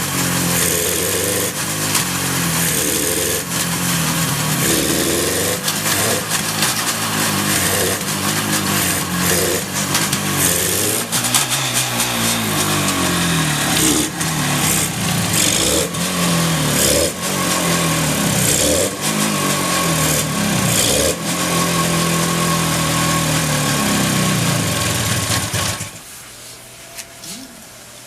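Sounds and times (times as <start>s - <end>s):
two-stroke engine revving: 0.0s - 26.0s.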